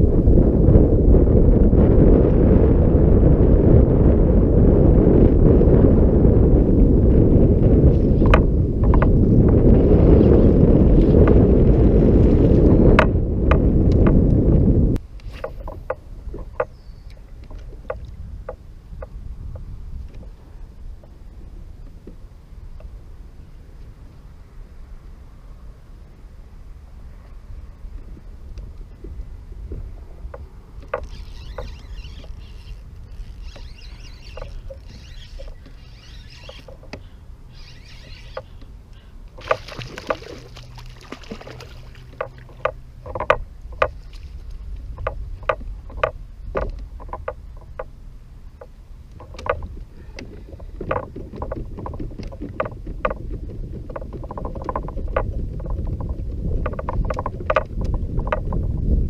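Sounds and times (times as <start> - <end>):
water against a hull: 0.0 - 59.0
wind rumble on microphone: 0.0 - 59.0
knocks and clicks on boat: 8.2 - 9.6, 12.5 - 14.4, 15.2 - 20.4, 27.9 - 58.8.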